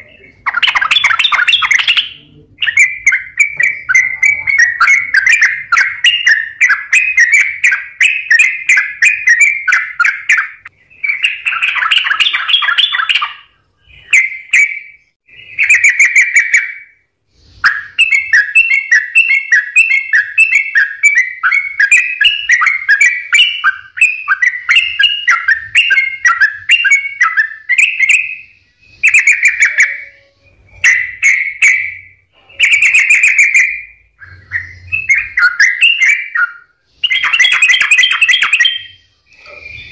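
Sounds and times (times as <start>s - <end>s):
bird bubbling chirps: 0.0s - 39.9s.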